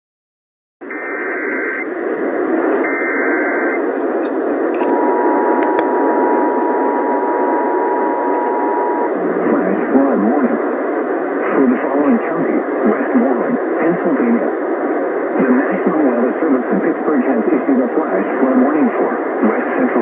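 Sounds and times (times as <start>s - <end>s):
radio static hiss: 0.8s - 20.0s
warbling alert data bursts: 2.8s - 3.8s
steady alarm tone: 2.8s - 3.9s, 4.5s - 10.2s.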